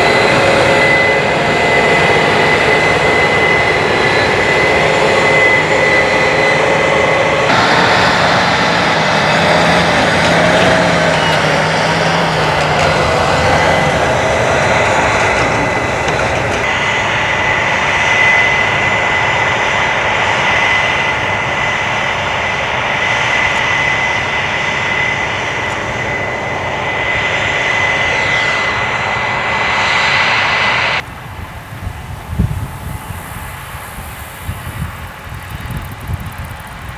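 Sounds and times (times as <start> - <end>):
thin high whine: 0.0 - 22.5, 23.3 - 36.9
large engine running: 0.0 - 27.1.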